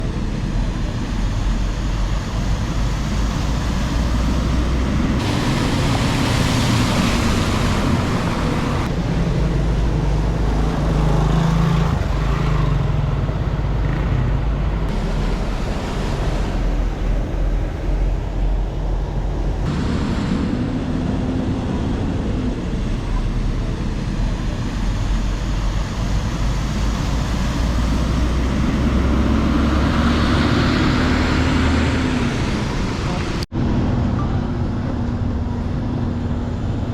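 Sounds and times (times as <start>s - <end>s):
vehicle engines running: 0.0s - 36.9s
hiss of wet road noise: 0.4s - 9.0s, 14.9s - 20.9s.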